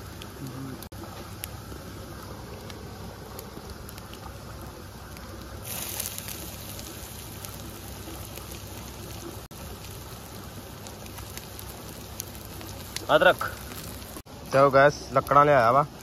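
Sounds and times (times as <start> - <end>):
wood fire crackling: 0.0 - 16.0
food sizzling in hot oil: 5.4 - 16.0.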